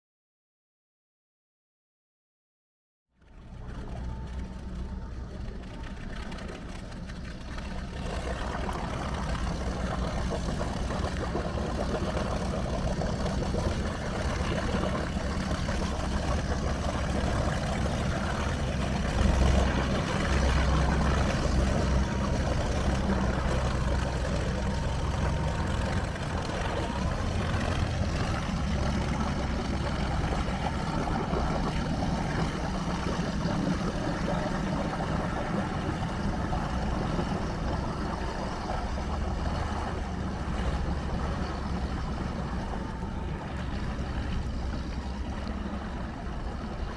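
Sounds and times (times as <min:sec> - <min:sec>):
boat engine idling: 0:03.2 - 0:46.9.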